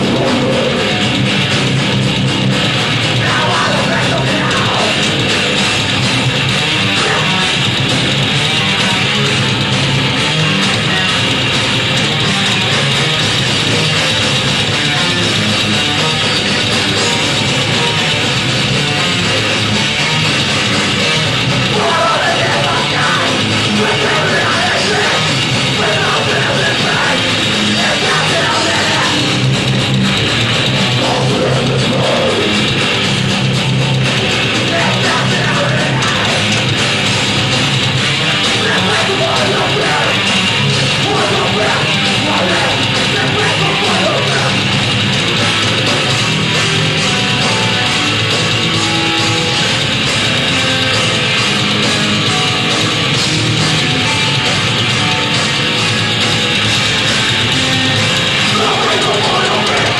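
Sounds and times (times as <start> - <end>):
distorted electric guitars: 0.0 - 59.9
drums: 0.0 - 59.9
live heavy rock band: 0.0 - 59.9
shouted vocals: 3.2 - 5.1, 6.9 - 7.6, 21.6 - 29.3, 30.9 - 32.6, 34.5 - 36.6, 38.4 - 44.6, 58.4 - 59.9.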